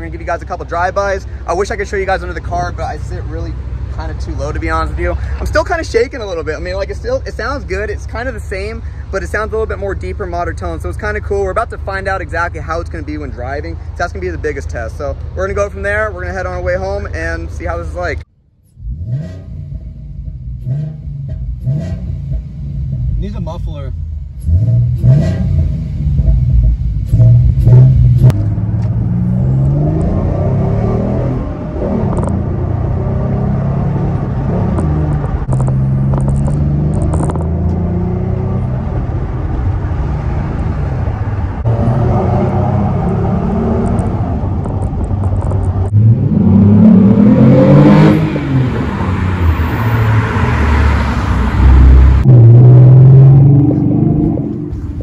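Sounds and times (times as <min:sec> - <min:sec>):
car engine accelerating and shifting: 0:24.3 - 0:55.0.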